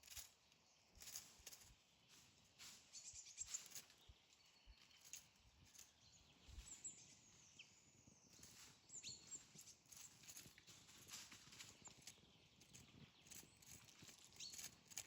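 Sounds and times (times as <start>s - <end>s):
soft rustles: 8.4s - 15.0s.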